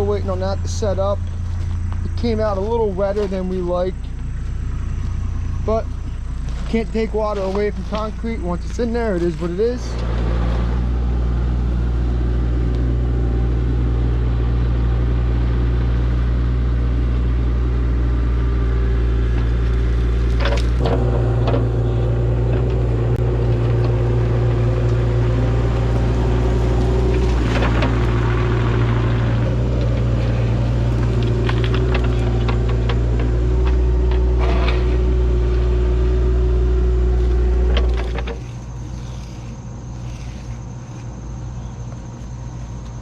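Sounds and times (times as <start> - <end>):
heavy equipment engine running: 0.0 - 43.0.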